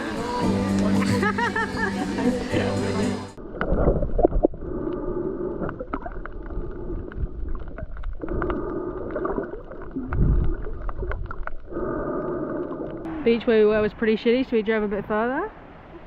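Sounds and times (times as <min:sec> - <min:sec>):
scooter engine humming: 0:00.0 - 0:03.4.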